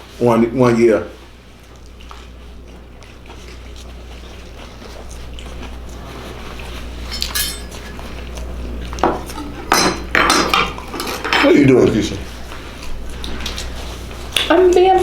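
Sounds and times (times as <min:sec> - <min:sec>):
steady low hum: 0:00.0 - 0:15.0
cutlery clinking against dishes: 0:07.0 - 0:08.2, 0:09.0 - 0:11.6.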